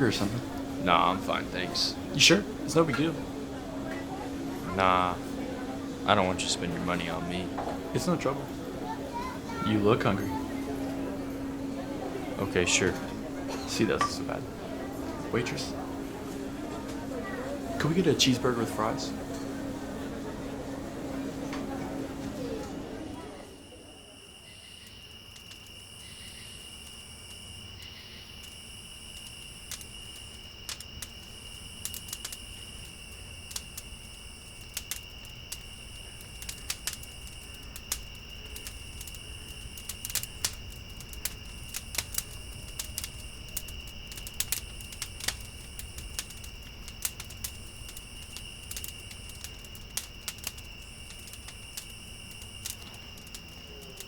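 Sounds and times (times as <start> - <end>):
crickets trilling: 0.0 - 54.0
high insect buzz: 23.6 - 54.0.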